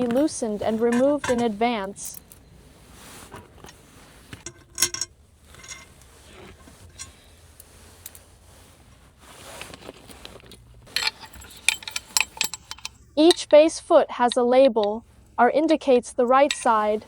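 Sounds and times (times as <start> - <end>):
screws and tools clinking on metal: 0.0 - 2.6, 3.2 - 8.2, 9.7 - 13.7, 14.3 - 17.0
ringing metal clink: 10.9 - 13.7, 16.3 - 17.0.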